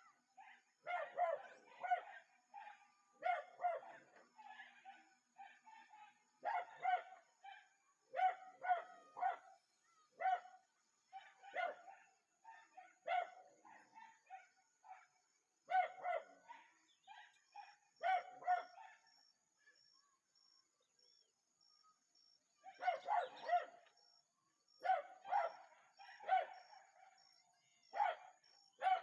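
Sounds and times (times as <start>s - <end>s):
dog barking: 0.0s - 19.4s, 22.6s - 24.0s, 24.8s - 29.0s.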